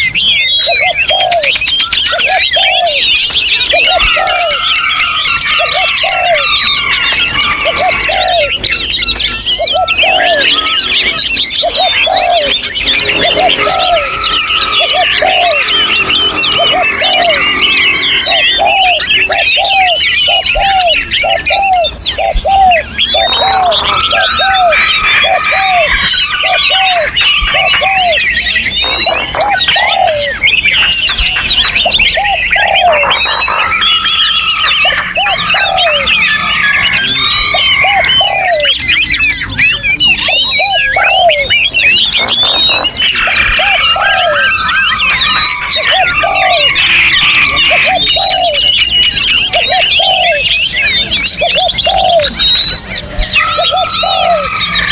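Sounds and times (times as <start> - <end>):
songbirds chorus: 0.0 - 54.9
low repeating arched note: 12.3 - 19.3.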